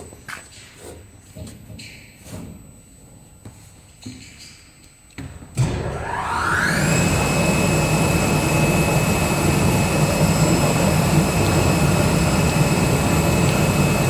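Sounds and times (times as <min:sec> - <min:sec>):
high motor whine: 0:05.6 - 0:14.0
low hum: 0:05.6 - 0:14.0.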